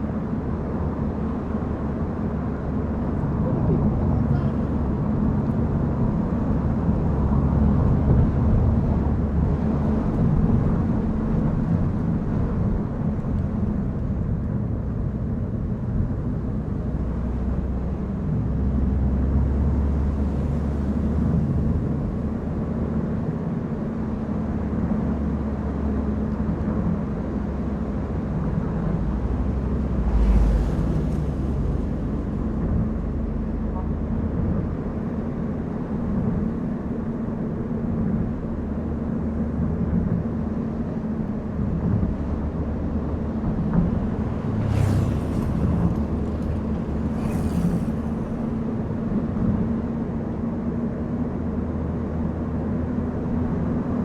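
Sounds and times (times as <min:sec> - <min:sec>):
car engine and tyre rumble: 0:00.0 - 0:54.0
whoosh: 0:44.2 - 0:48.9.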